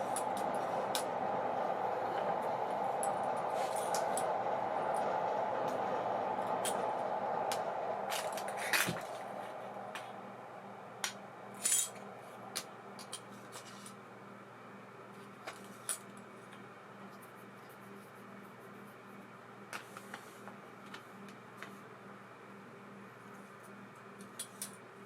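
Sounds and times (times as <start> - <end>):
steady low hum: 0.0 - 15.1.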